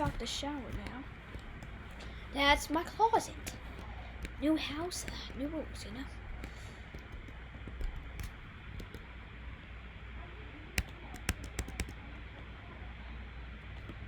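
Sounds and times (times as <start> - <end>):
sharp clicks and taps: 0.0 - 9.1, 10.8 - 12.0
low hum and hiss: 0.0 - 14.0.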